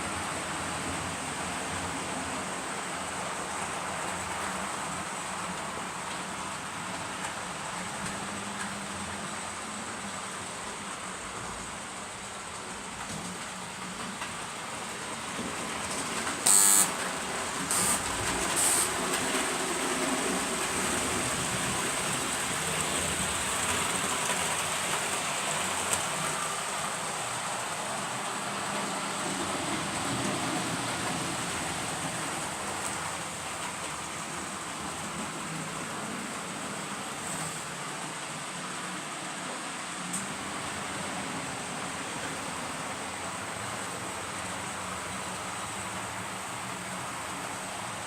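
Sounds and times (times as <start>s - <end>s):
diesel locomotive engine: 0.0s - 48.0s
locomotive horn blasts: 16.5s - 16.9s, 17.7s - 18.8s.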